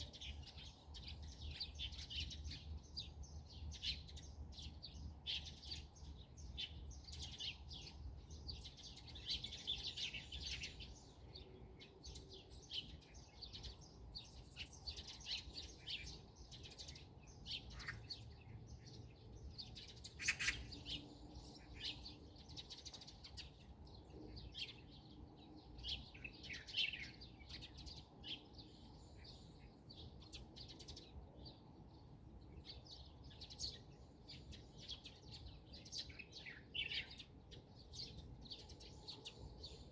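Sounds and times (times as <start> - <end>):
wild birds chirping and singing: 0.0 - 39.9.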